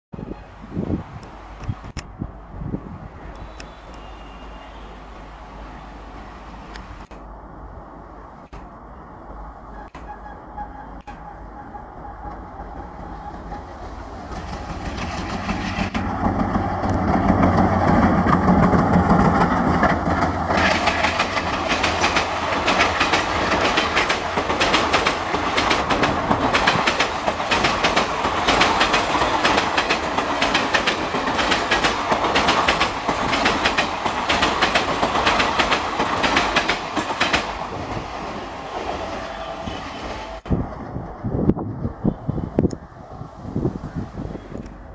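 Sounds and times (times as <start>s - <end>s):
train passing at speed: 0.2s - 44.9s
wheel clatter over rail joints: 9.8s - 38.1s.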